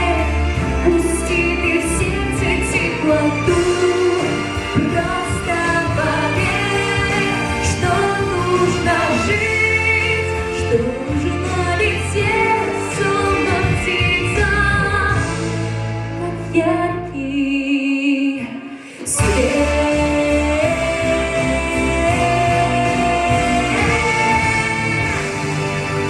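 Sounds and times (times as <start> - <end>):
pop ballad backing track: 0.0 - 17.5, 19.0 - 26.0
girl singing: 19.1 - 25.2.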